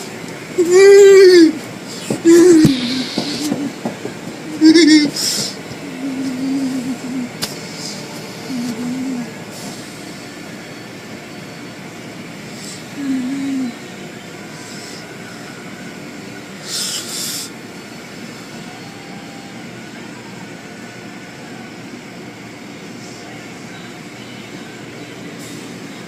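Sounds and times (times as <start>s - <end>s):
car wash machinery rumbling: 0.0s - 16.6s.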